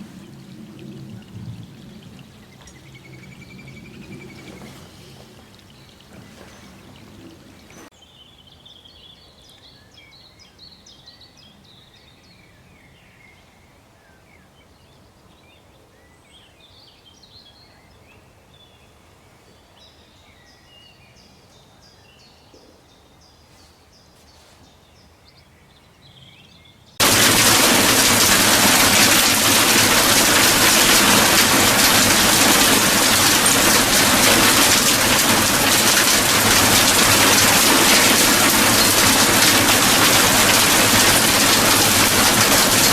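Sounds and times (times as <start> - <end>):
heavy rain: 0.0 - 7.9, 27.0 - 42.9
birds chirping faintly: 0.0 - 11.7.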